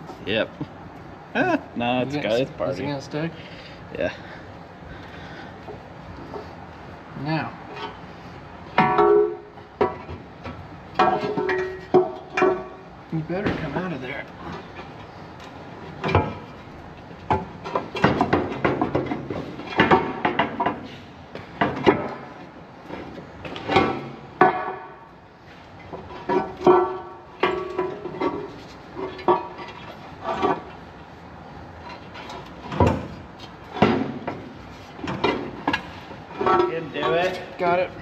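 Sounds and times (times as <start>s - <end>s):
hand tools clanking on metal: 11.0s - 12.8s, 25.8s - 30.8s, 35.0s - 37.6s.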